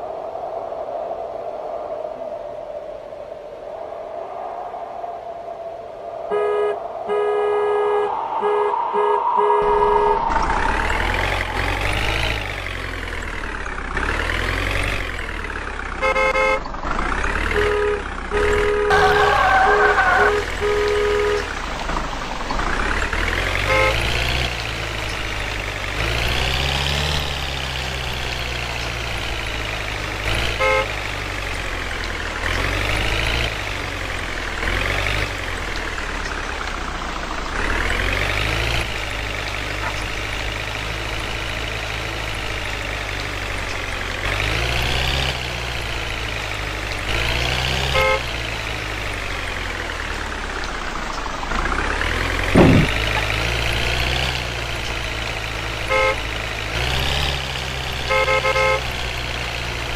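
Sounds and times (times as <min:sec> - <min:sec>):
horn toots: 0:06.3 - 0:11.7, 0:16.0 - 0:16.6, 0:17.4 - 0:21.5, 0:23.6 - 0:24.4, 0:30.3 - 0:31.0, 0:47.7 - 0:48.4, 0:52.6 - 0:53.4, 0:55.9 - 0:56.3, 0:58.0 - 0:59.0
truck engine revving: 0:08.0 - 0:59.9.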